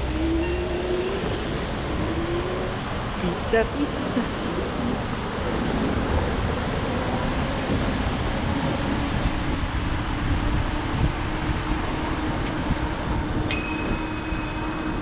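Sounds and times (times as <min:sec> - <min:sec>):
road noise: 0:00.0 - 0:15.0
wind rushing over microphone: 0:00.0 - 0:15.0
high ringing tone: 0:00.2 - 0:02.5, 0:13.5 - 0:15.0.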